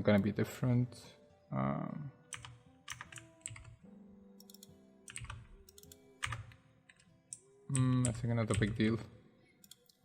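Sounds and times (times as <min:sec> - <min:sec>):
faint background music: 0:00.0 - 0:10.0
keyboard and mouse clicking: 0:02.3 - 0:03.8, 0:04.4 - 0:08.9, 0:09.6 - 0:10.0.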